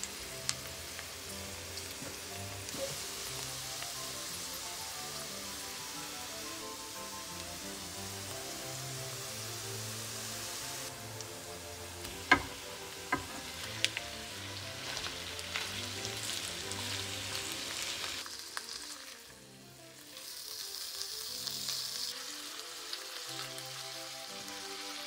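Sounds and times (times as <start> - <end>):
background music: 0.0 - 25.0
food sizzling in frying pan: 0.0 - 25.0
utensil clicking on pan: 12.0 - 14.1.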